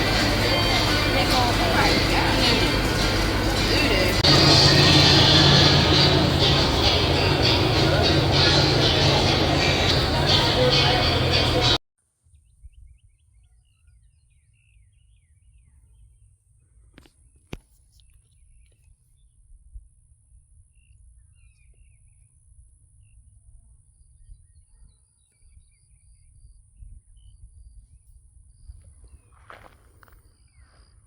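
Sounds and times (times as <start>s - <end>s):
steady high-pitched tone: 0.0s - 11.8s.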